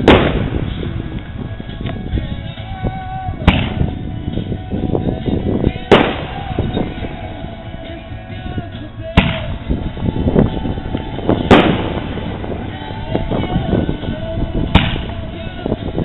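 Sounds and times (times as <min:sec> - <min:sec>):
fireworks crackling bursts: 0:00.0 - 0:01.8, 0:05.8 - 0:07.6, 0:09.1 - 0:15.4
loud firework reports: 0:00.0 - 0:01.8, 0:05.4 - 0:07.7, 0:08.5 - 0:15.4
firework launch thumps: 0:03.5 - 0:03.9, 0:09.2 - 0:09.6, 0:11.4 - 0:12.6, 0:14.7 - 0:15.2.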